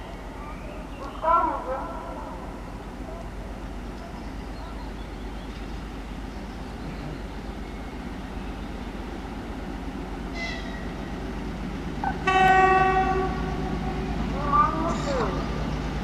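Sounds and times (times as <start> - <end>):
train rumbling: 0.0 - 16.0
train horn blast: 10.3 - 11.0, 12.0 - 15.7.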